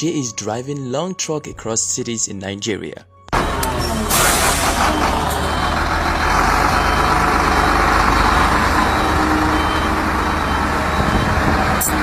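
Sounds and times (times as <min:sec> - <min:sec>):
heavy truck engine and road noise: 0:03.3 - 0:12.0.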